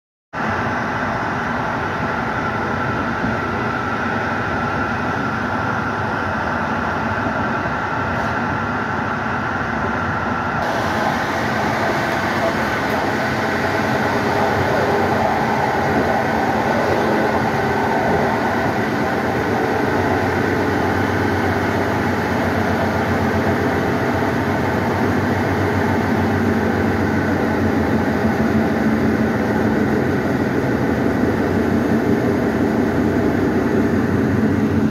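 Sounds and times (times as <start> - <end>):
train carriage rumbling: 0.4 - 34.9
train wheels rolling on rails: 1.2 - 34.9.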